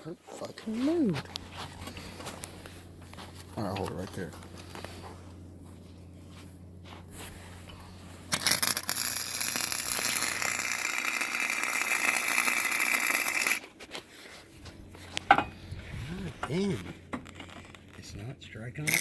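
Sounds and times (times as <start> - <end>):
low hum: 0.9 - 18.8
welding arc crackling: 8.3 - 13.6.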